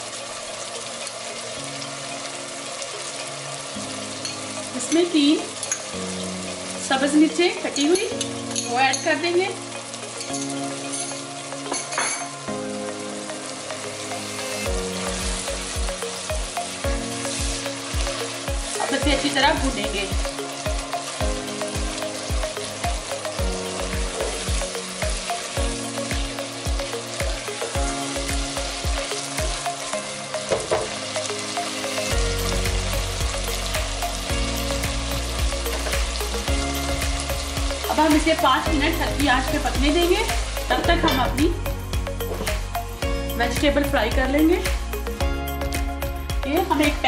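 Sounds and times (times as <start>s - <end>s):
meat sizzling in hot oil: 0.0s - 47.0s
background music with low beat: 10.4s - 47.0s.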